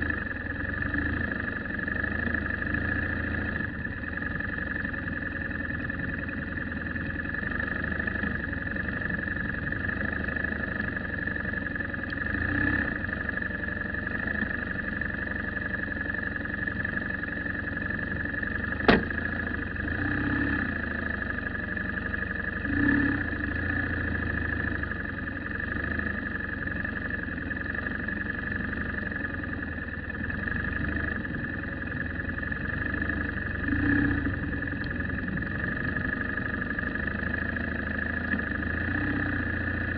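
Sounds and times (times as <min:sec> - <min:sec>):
car engine running: 0:00.0 - 0:39.9
high whine: 0:00.0 - 0:39.9
road noise: 0:00.0 - 0:39.9
sharp click: 0:18.8 - 0:19.2.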